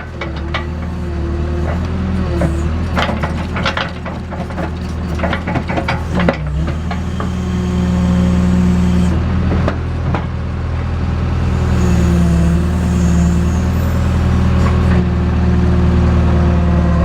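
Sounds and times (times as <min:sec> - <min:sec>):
backhoe diesel engine running: 0:00.0 - 0:17.0
knocks and rattles: 0:02.4 - 0:07.8.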